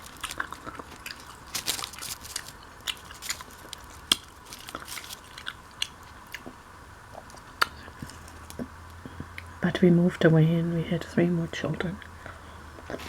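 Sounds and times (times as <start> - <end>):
person chewing sandwich: 0.0 - 8.7.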